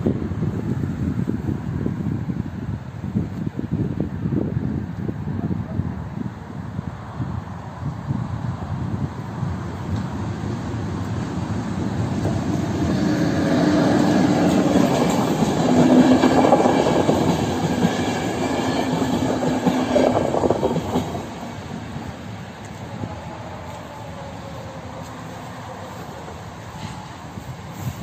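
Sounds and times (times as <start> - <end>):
train wheels on rails: 7.2 - 28.0.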